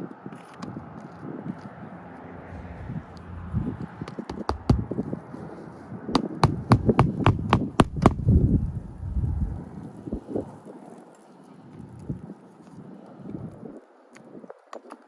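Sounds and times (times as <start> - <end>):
hammer driving nails: 4.1 - 5.0, 6.2 - 8.3.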